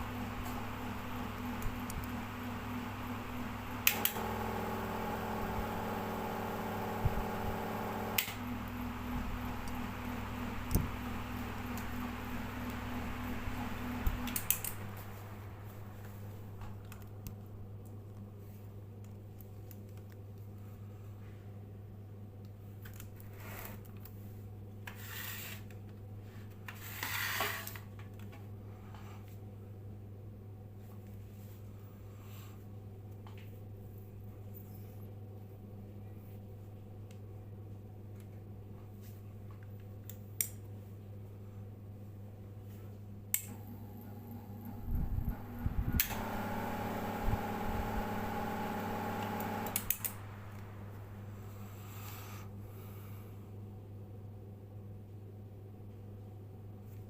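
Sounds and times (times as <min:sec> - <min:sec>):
loud electrical buzz: 0:00.0 - 0:15.6, 0:43.6 - 0:51.1
ceiling fan motor humming: 0:00.0 - 0:21.2, 0:42.6 - 0:54.2.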